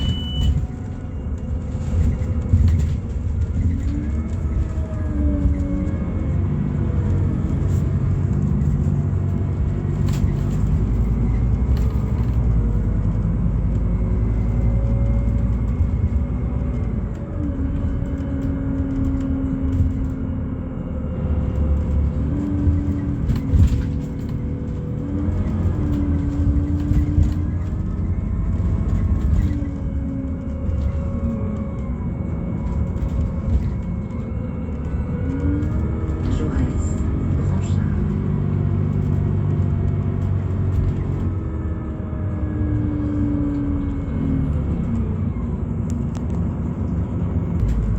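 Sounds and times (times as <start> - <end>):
bus engine changing gears: 0.0 - 47.9
road rumble: 0.0 - 47.9.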